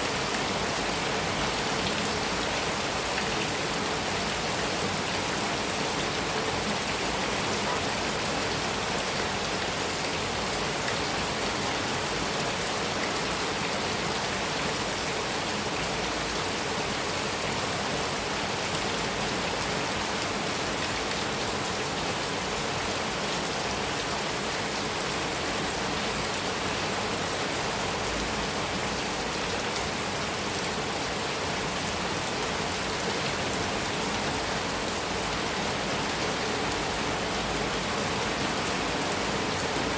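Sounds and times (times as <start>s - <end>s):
heavy rain on a metal roof: 0.0s - 39.9s.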